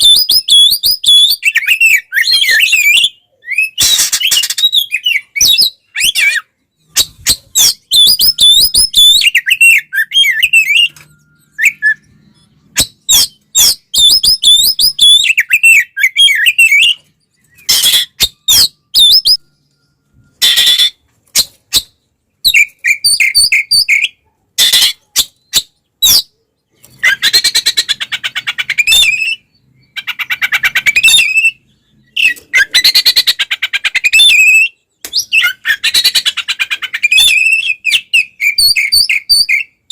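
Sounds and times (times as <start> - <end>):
magpie-robin singing: 0.0 - 39.9
harsh bird chattering: 27.0 - 34.7.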